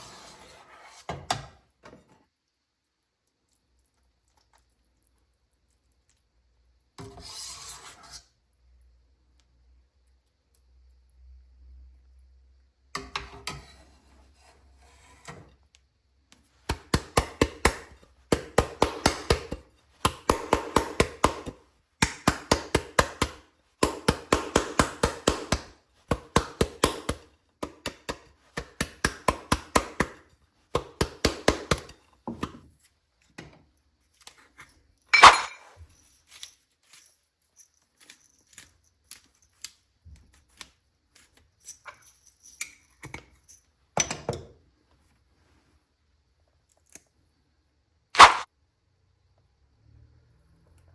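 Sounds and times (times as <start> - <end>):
rapid kitchen knocks: 16.6 - 32.6.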